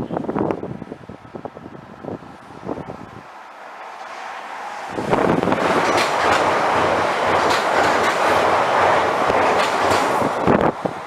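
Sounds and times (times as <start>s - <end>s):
train wheels rushing on rail: 3.6s - 11.0s
wheels clacking over rail joints: 4.0s - 10.7s.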